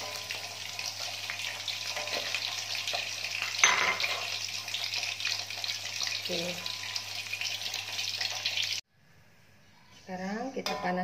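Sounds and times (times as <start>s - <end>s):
spatula stirring: 0.0s - 8.6s
liver sizzling in hot oil: 0.0s - 8.8s.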